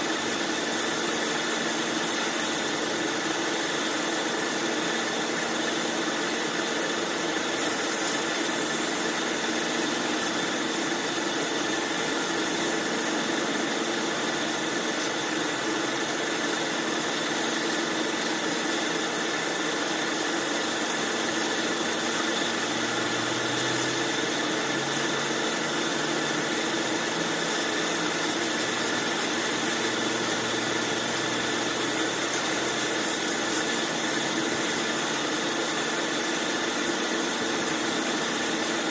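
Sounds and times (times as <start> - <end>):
bandsaw running: 0.0 - 38.9.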